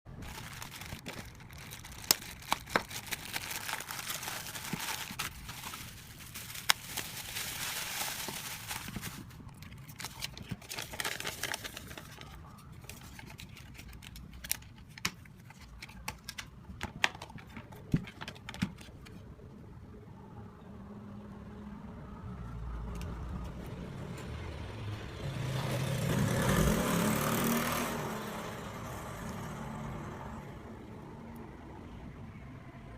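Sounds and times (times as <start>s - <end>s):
plastic packaging crinkling and clicking: 0.1s - 19.2s.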